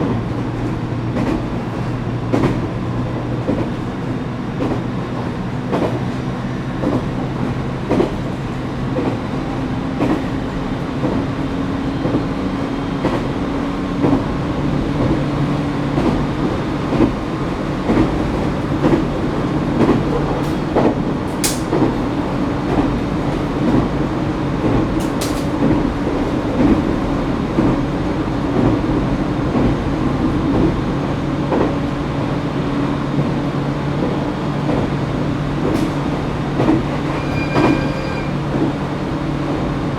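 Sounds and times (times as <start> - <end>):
wheels clacking over rail joints: 15.0 - 27.9, 34.0 - 39.5.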